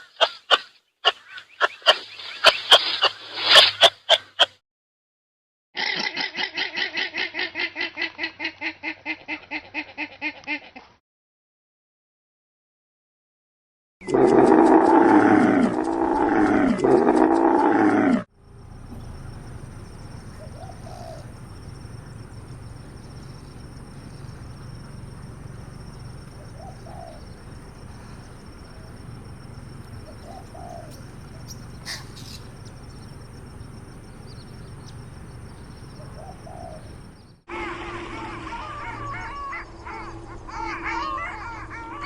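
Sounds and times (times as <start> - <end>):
bird calling softly: 18.4 - 37.4
outdoor background hiss: 18.4 - 37.5.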